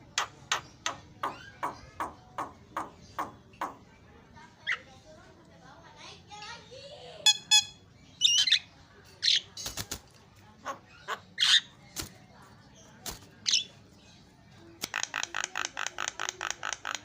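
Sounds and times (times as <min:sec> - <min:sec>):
bird squawks and clicks: 0:14.8 - 0:17.0.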